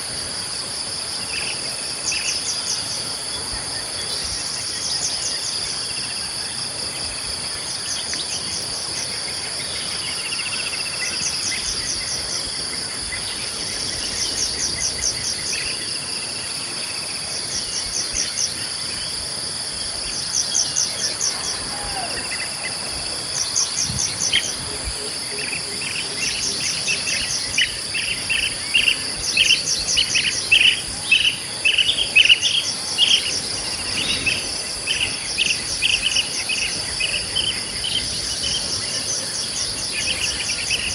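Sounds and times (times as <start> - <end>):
crickets and insects chirping: 0.0 - 40.9
bird chirping: 20.0 - 40.9.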